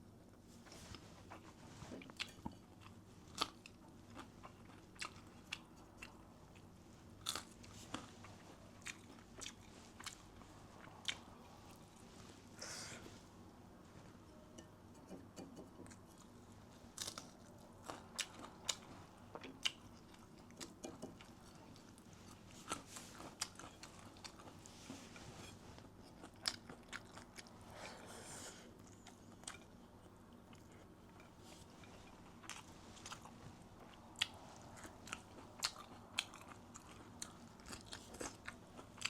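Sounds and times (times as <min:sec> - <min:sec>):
crunchy food chewing: 0:01.3 - 0:11.8, 0:28.8 - 0:39.0.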